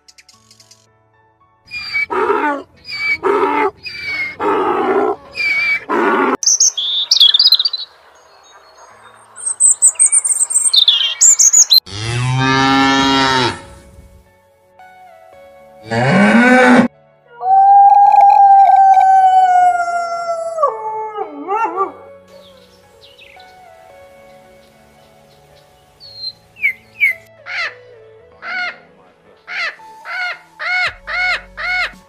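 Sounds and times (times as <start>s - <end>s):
high chirping: 5.3s - 11.9s.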